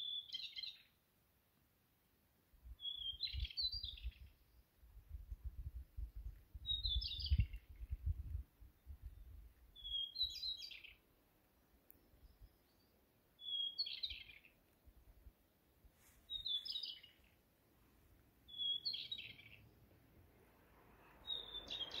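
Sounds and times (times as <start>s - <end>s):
songbird singing: 0.0s - 1.0s, 2.6s - 22.0s.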